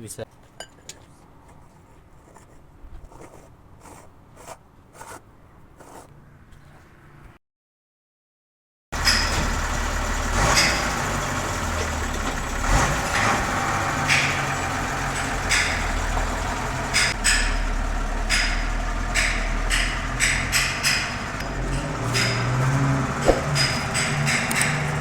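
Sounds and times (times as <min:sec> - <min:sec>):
sharp metallic knocks: 0:09.0 - 0:09.8, 0:10.4 - 0:25.0
truck diesel engine idling: 0:09.0 - 0:25.0.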